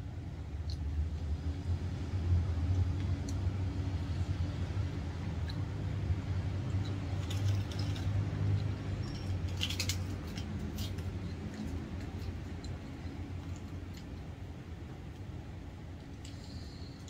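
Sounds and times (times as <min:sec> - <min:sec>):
wet chewing and lip smacks: 0:06.6 - 0:14.3.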